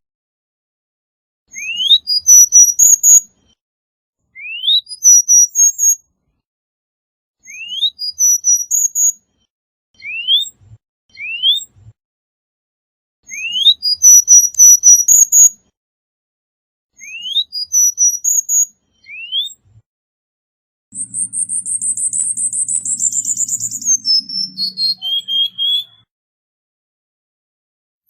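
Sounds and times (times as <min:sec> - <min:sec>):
bullfinch singing: 0:21.0 - 0:26.0.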